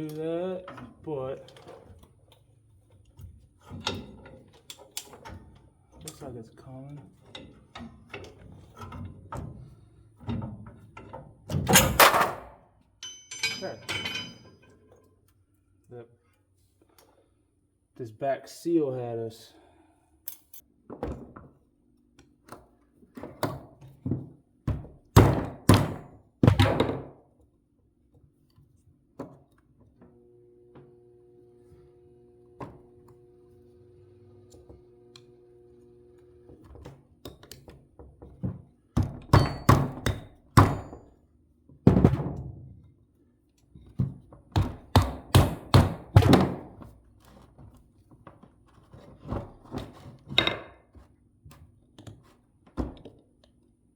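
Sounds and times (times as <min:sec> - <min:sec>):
hammer strikes on metal: 0:13.0 - 0:14.5.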